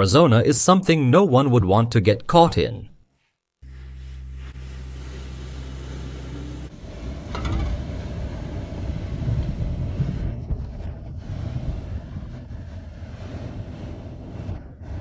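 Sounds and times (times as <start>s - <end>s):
steady low hum: 3.6s - 15.0s
wind buffeting microphone: 6.8s - 15.0s.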